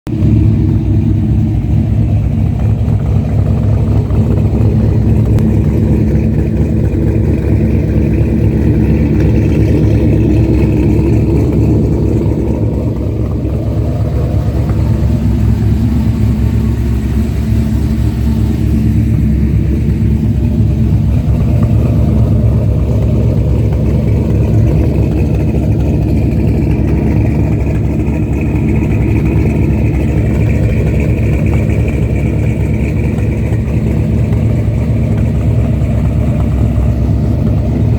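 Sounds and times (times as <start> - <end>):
pickup truck engine idling: 0.0 - 37.9.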